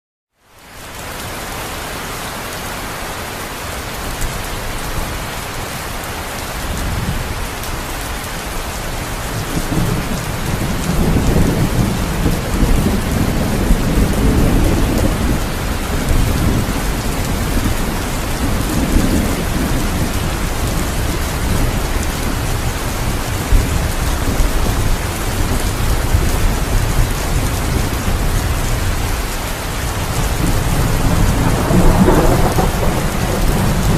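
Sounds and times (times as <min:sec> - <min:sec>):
heavy rain: 0:00.4 - 0:33.9
thunder rumbling: 0:08.8 - 0:33.9.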